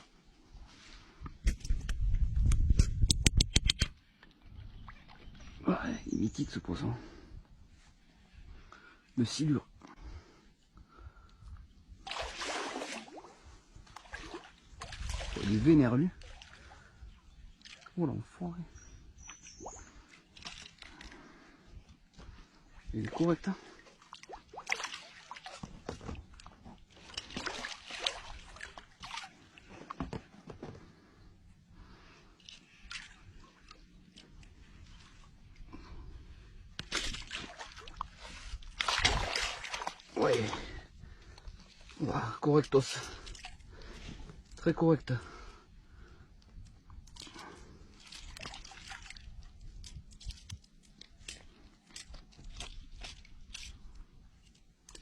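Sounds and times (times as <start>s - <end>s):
water splashing and sloshing: 3.7s - 55.0s.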